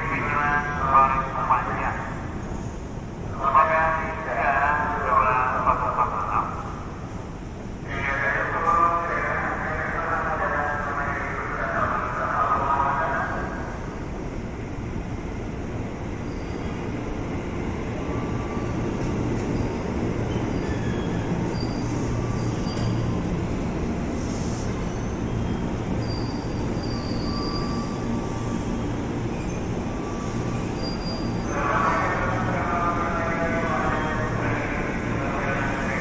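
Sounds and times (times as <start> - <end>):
train rolling rumble: 0.0 - 36.0
wheel squeals: 19.6 - 23.1, 24.8 - 28.0, 30.7 - 31.6.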